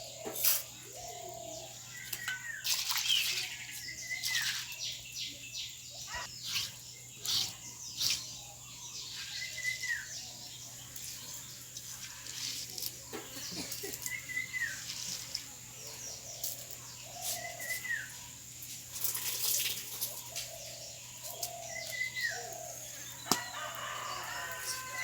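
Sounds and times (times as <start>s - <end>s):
bird calling: 5.9s - 10.4s.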